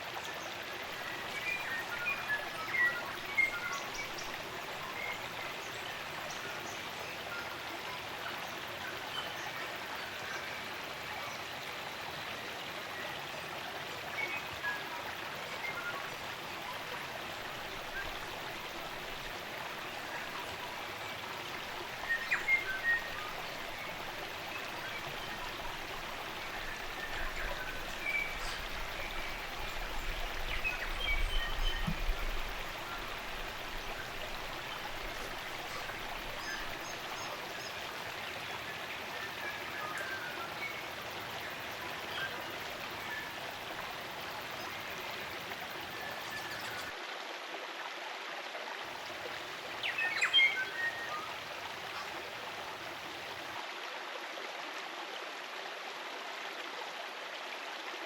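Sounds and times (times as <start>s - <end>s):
stream running: 0.0s - 58.0s
songbirds chirping: 17.4s - 40.9s.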